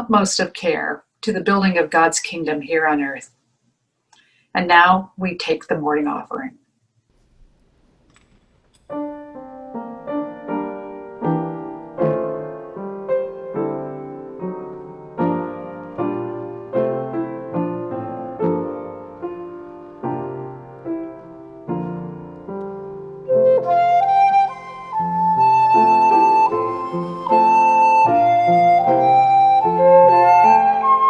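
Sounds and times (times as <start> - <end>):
slow piano piece: 8.2 - 31.0
bright piano melody: 8.9 - 31.0.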